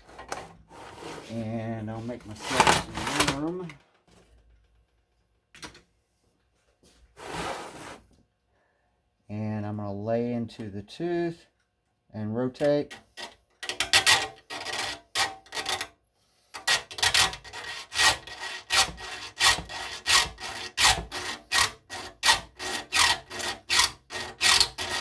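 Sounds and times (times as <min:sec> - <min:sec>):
file stroking saw teeth: 0:16.6 - 0:25.0.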